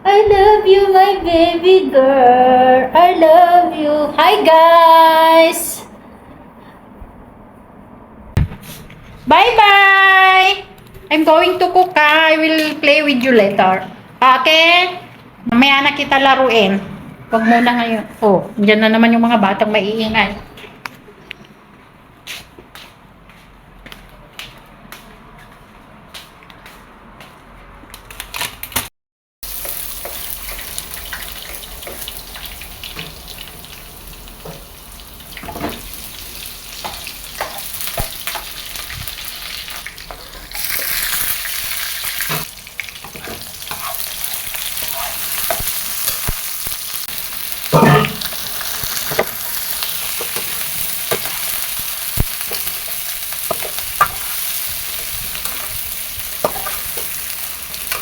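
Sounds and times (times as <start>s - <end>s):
food sizzling in a pan: 29.4s - 58.0s
utensil stirring and clicking on pan: 29.5s - 33.5s, 36.7s - 46.9s, 47.5s - 58.0s.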